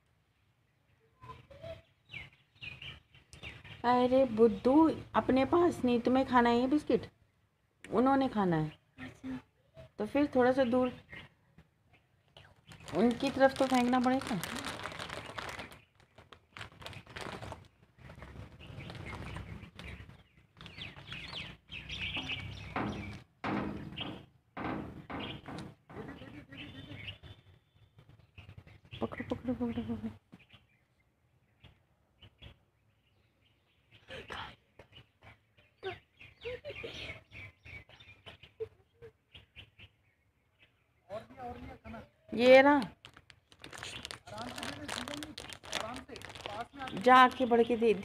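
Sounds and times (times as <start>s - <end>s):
small birds chirping: 0.2s - 48.0s
faint bird chirps: 0.8s - 3.9s, 26.2s - 42.5s.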